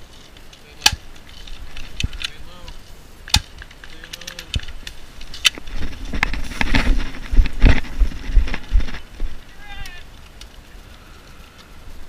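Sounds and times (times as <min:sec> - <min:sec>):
loud rustling: 0:00.0 - 0:12.0
sharp clicks: 0:00.4 - 0:05.6.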